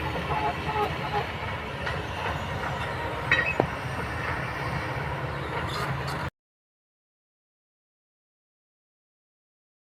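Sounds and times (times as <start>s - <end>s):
excavator engine rumbling: 0.0s - 6.3s
sharp metallic clanks: 1.8s - 3.8s.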